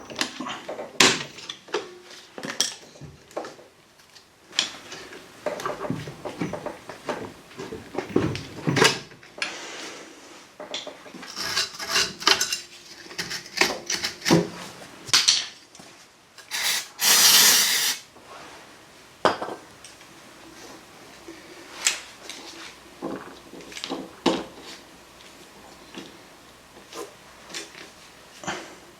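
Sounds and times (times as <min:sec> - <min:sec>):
tools and metal parts clanking: 0:00.0 - 0:03.6, 0:04.6 - 0:09.2, 0:10.7 - 0:15.6, 0:16.4 - 0:18.0
loud scraping rush: 0:16.5 - 0:18.0.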